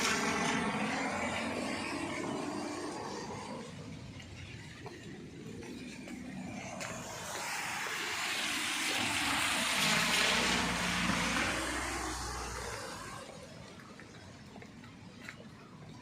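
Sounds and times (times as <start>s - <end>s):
car passing on wet road: 6.6s - 13.5s.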